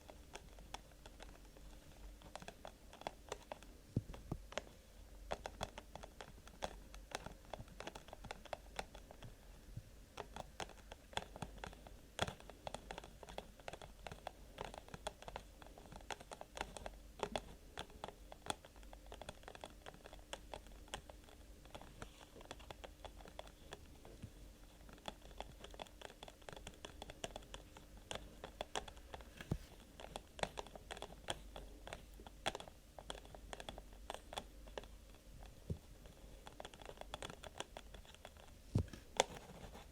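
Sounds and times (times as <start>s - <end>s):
light tapping and scratching: 0.0s - 39.9s.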